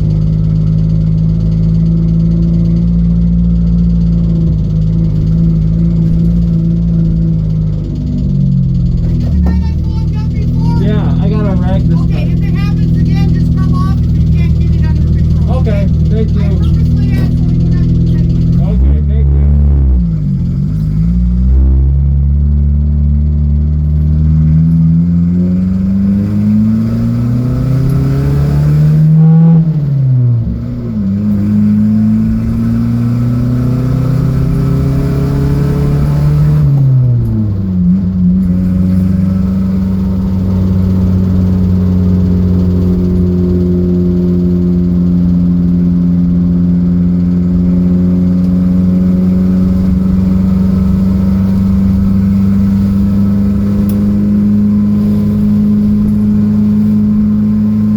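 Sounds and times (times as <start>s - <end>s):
car engine accelerating: 0.0s - 57.9s.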